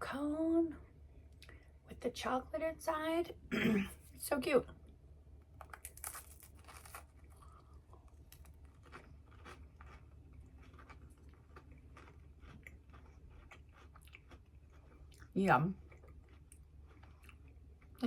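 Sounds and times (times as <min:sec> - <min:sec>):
crunching crisp snack: 0:05.6 - 0:18.0.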